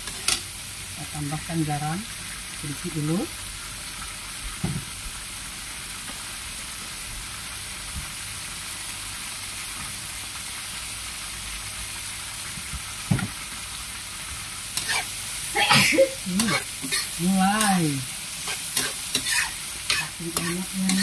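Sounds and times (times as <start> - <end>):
food sizzling in a wok: 0.0 - 21.0
metal spatula scraping wok: 14.7 - 21.0.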